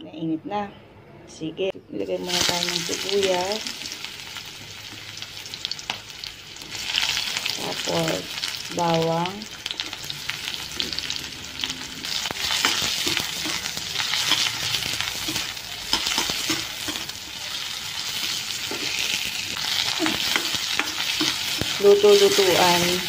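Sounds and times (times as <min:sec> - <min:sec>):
food sizzling in oil: 0:02.2 - 0:23.0
metal ladle scraping a wok: 0:10.9 - 0:21.8.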